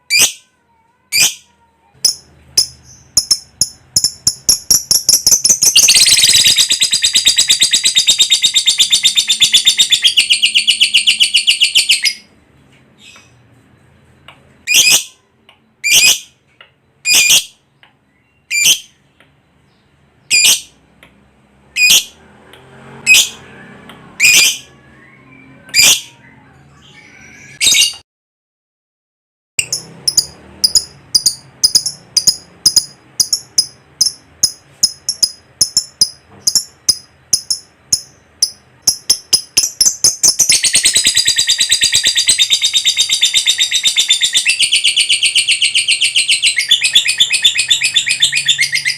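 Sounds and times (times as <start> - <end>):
lovebird sharp high calls: 1.1 - 12.3, 14.7 - 15.2
lovebird shrill chattering trill: 2.0 - 12.3, 29.6 - 48.9.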